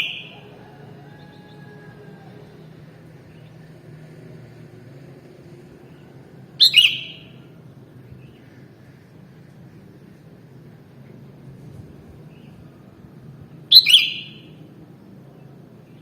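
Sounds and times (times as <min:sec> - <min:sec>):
bird call: 0:00.0 - 0:02.8, 0:06.6 - 0:07.5, 0:13.7 - 0:14.6.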